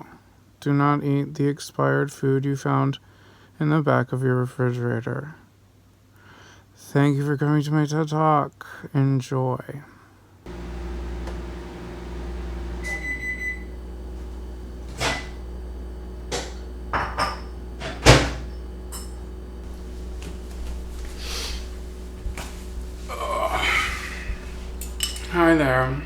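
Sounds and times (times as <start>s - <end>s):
steady low hum: 10.5s - 26.0s
doors and containers knocking: 16.3s - 19.2s.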